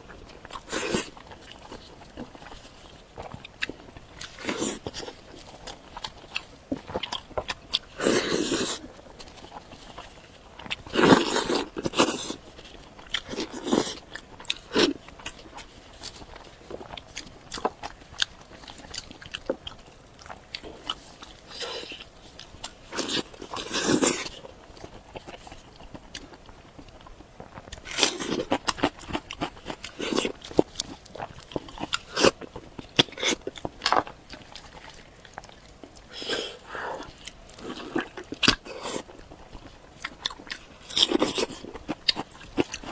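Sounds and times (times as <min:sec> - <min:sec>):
person biting and chewing: 0:00.0 - 0:42.9.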